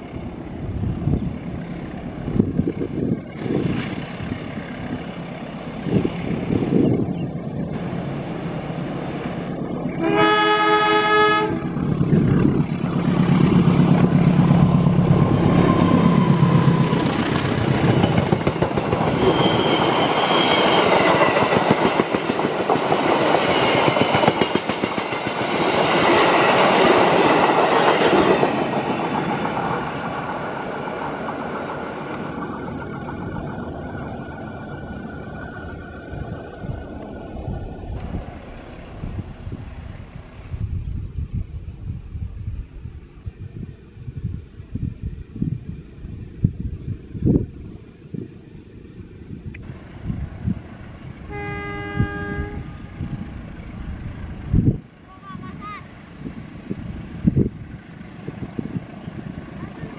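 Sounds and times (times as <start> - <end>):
train engine running: 0.0 - 59.9
locomotive horn: 10.0 - 11.7, 51.3 - 53.1
train wheels clickety-clack: 12.9 - 33.9.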